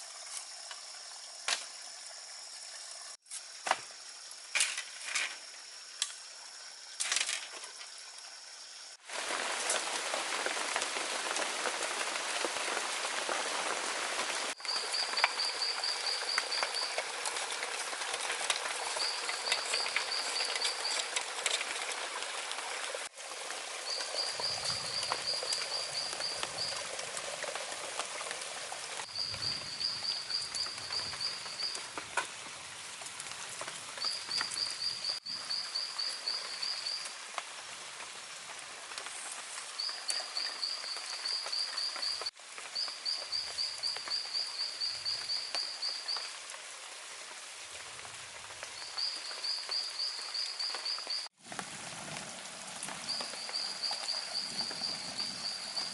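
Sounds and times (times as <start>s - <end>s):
rushing outdoor ambience hiss: 0.0s - 55.9s.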